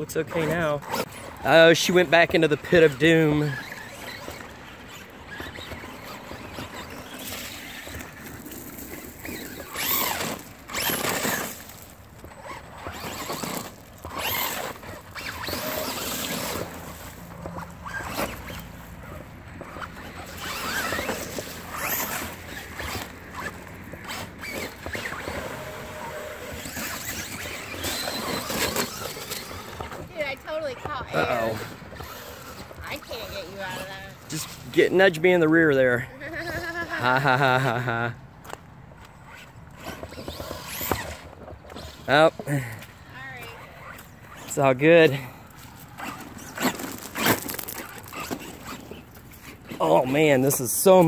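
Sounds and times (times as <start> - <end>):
rc truck electric motors whining: 0.0 - 51.0
tyres churning through mud: 0.0 - 51.0.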